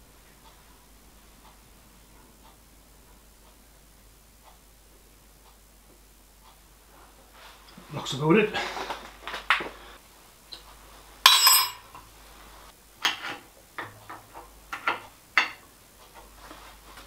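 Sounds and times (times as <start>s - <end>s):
ringing metal clink: 11.3s - 11.9s.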